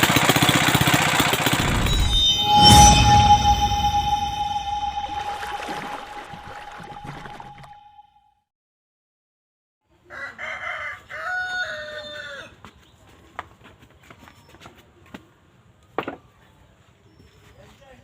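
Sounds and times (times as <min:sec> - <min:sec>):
rooster crowing: 0:10.1 - 0:12.4.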